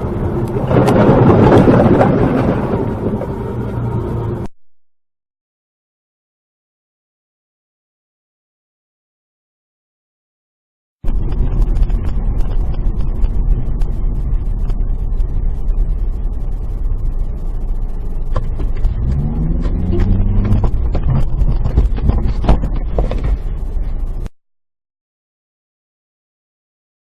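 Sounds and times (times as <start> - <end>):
car road and engine rumble: 0.0 - 4.5, 11.0 - 24.3
engine note rising: 0.0 - 4.5, 11.0 - 24.3.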